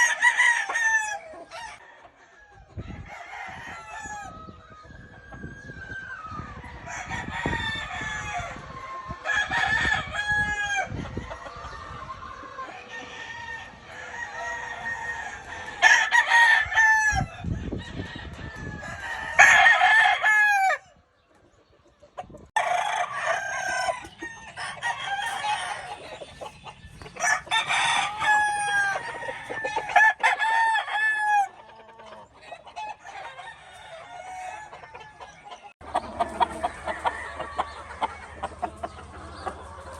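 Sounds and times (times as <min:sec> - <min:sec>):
roosters crowing: 0:00.0 - 0:21.1, 0:22.4 - 0:39.9
chickens clucking: 0:00.0 - 0:39.9.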